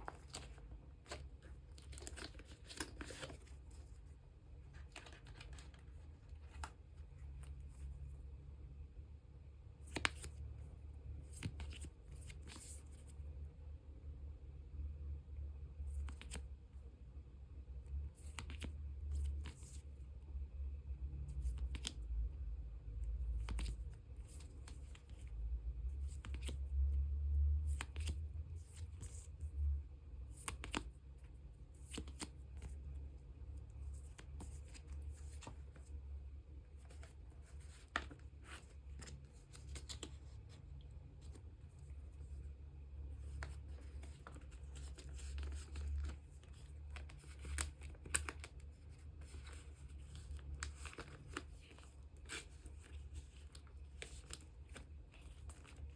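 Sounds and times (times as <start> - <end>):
plastic sleeves rustling: 0.0 - 8.1, 30.2 - 55.9.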